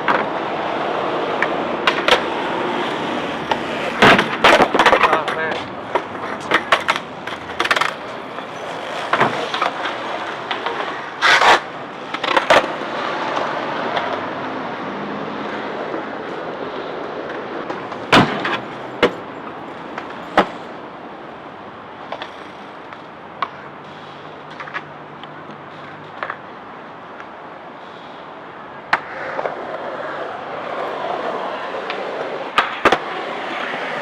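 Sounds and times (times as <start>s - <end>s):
skateboard wheels rolling: 0.0s - 34.0s
skateboard clacking on landing: 1.0s - 14.2s, 17.1s - 26.4s.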